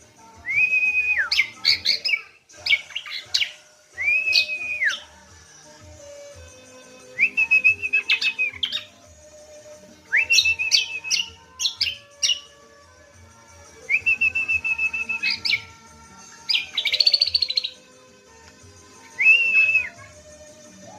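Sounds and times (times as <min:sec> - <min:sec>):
bird singing warbling trill: 0:00.5 - 0:05.2, 0:06.5 - 0:09.0, 0:10.1 - 0:12.6, 0:13.9 - 0:15.8, 0:16.4 - 0:18.0, 0:19.1 - 0:20.9.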